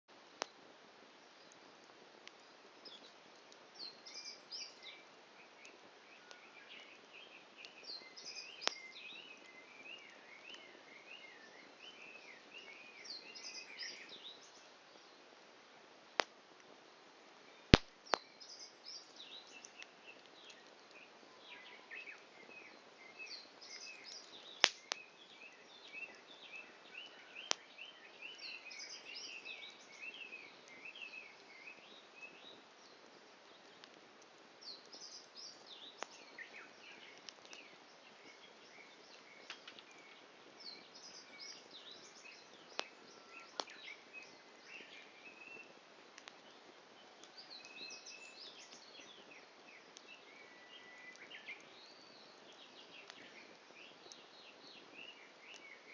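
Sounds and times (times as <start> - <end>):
faint steady hiss: 0.0 - 55.9
campfire popping and cracking: 0.1 - 50.5, 51.1 - 55.9
small bird chirping: 17.6 - 33.9, 34.6 - 55.9.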